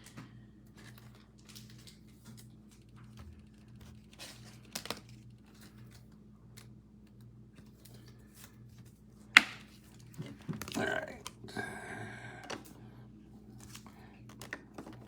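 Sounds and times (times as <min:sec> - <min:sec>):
crinkle: 0:00.0 - 0:09.0
low steady hum: 0:00.0 - 0:15.0.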